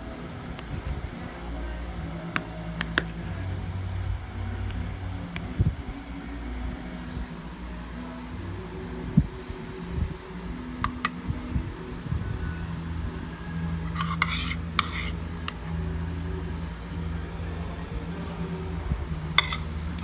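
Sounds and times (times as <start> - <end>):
steady low hum: 0.0 - 20.0
utensils clinking against dishes: 10.8 - 11.2, 13.8 - 15.7, 19.4 - 20.0.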